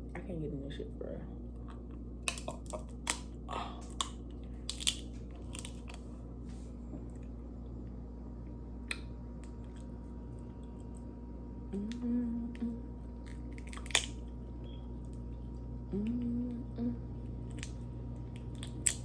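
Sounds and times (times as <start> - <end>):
crab shell cracking: 2.2 - 6.1, 13.2 - 14.4, 17.4 - 19.0.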